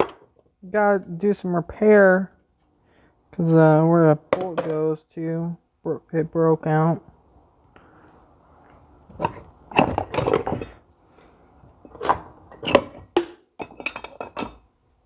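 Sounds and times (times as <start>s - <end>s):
metal tools clinking: 13.6s - 14.6s.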